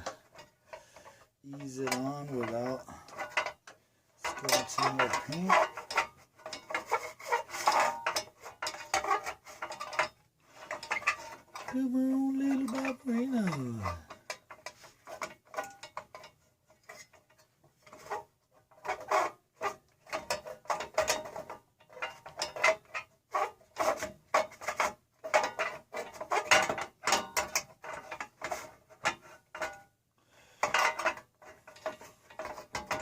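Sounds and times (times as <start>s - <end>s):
metal parts clicking and scraping: 0.0s - 11.8s, 30.6s - 33.0s.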